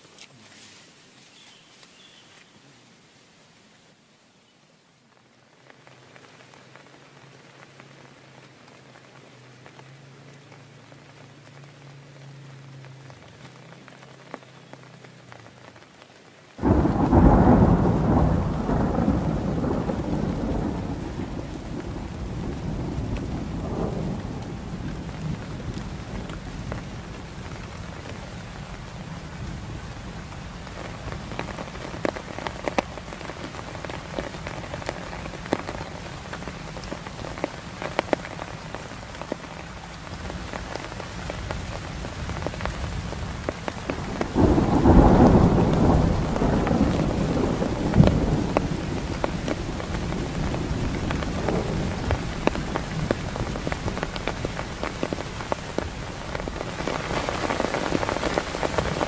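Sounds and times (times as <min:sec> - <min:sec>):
heavy rain falling: 0:00.0 - 0:59.0
raindrops ticking on a surface: 0:00.0 - 0:59.0
thunder rumbling: 0:16.6 - 0:38.9, 0:41.2 - 0:59.0.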